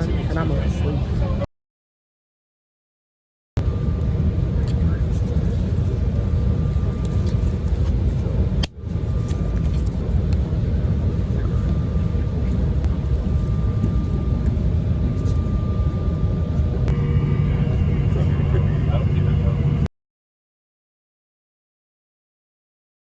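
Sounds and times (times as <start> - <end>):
jet engine and airflow rumble: 0.0 - 1.5, 3.6 - 19.9
faint steady whine: 3.6 - 19.9.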